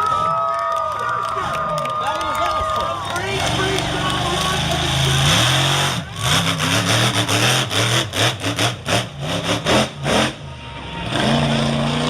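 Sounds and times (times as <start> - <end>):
monster truck engine revving: 3.0 - 12.0.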